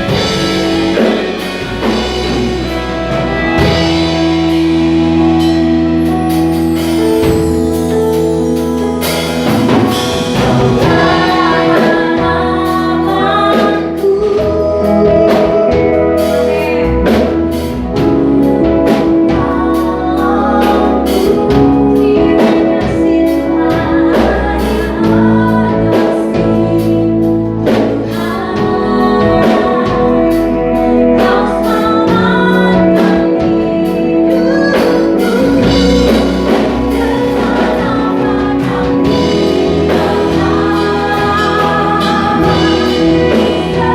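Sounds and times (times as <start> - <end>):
drum kit hits: 0.0 - 14.0, 34.7 - 43.9
worship band playing: 0.0 - 43.9
person singing: 7.0 - 43.9.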